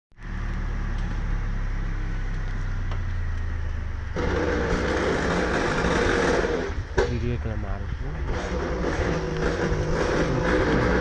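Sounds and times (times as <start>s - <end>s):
tractor engine running: 0.2s - 11.0s
loud rough noise: 4.1s - 11.0s.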